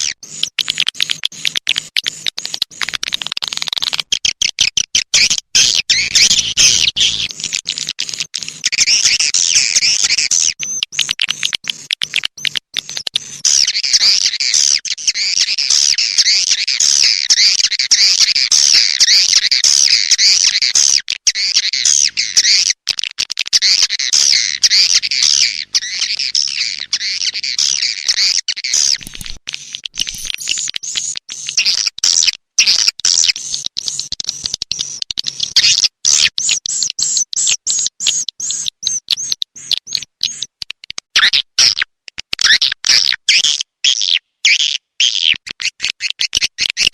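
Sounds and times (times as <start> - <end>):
swiftlets twittering: 0.0 - 4.0, 5.6 - 14.1, 28.8 - 31.0
quick sharp clicks: 0.0 - 9.1, 10.6 - 13.6, 28.8 - 30.8.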